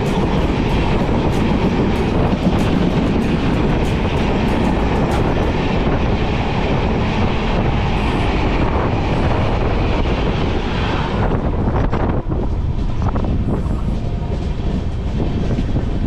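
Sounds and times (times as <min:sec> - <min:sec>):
train wheels roaring on rails: 0:00.0 - 0:16.0.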